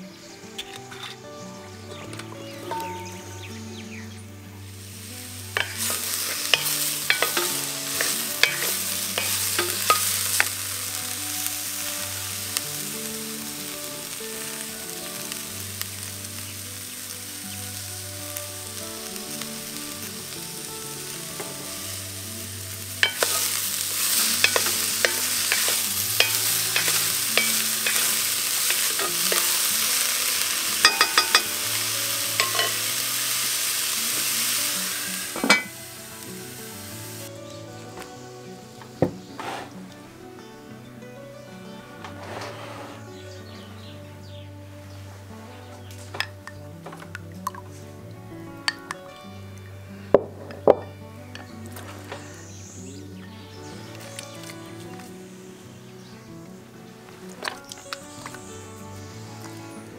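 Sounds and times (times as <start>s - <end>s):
broccoli sizzling in a pot: 2.5s - 39.0s, 51.0s - 56.2s, 57.2s - 59.9s.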